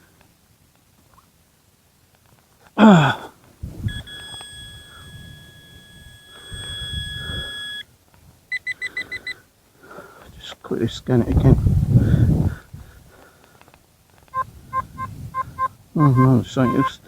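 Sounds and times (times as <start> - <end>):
person grunting: 2.8 - 3.3
metal detector tone: 3.9 - 7.8, 14.3 - 17.0
short beeps: 3.9 - 7.8, 14.4 - 17.0.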